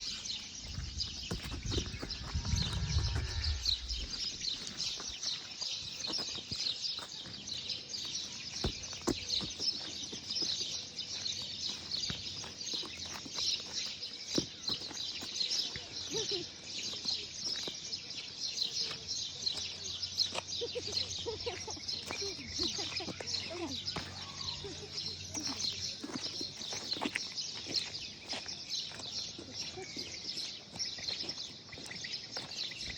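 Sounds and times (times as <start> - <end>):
flock of birds chirping: 0.0 - 32.9
low rumble: 1.6 - 4.6.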